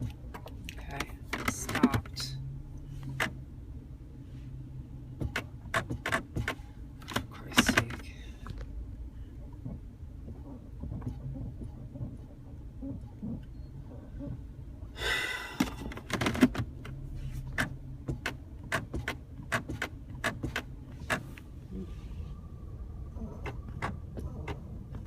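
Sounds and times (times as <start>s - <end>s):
steady low hum: 0.0s - 25.0s
sharp irregular clicking: 5.2s - 8.6s, 15.6s - 21.4s.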